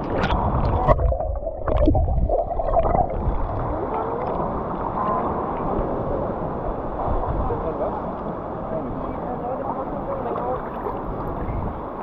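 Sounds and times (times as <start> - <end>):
muffled underwater sloshing: 0.0 - 12.0.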